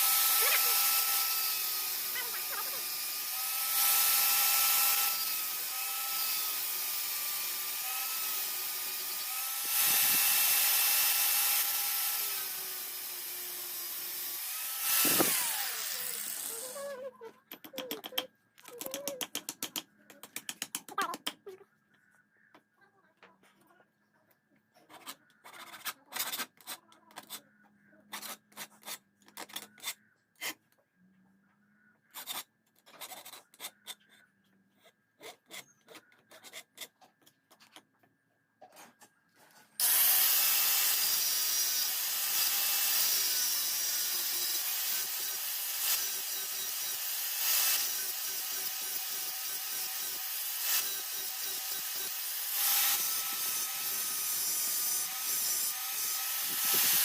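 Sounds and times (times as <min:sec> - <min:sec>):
power tool grinding: 0:00.0 - 0:17.9, 0:39.8 - 0:57.0
hand tool scraping and knocking: 0:14.9 - 0:21.4, 0:55.3 - 0:57.0.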